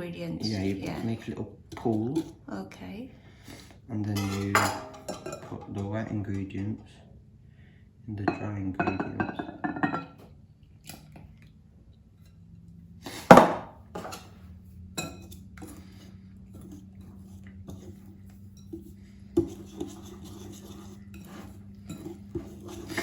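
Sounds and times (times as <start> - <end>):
utensils clinking against a bowl: 0.3 - 2.4, 3.5 - 6.4, 8.3 - 10.2, 13.1 - 23.0.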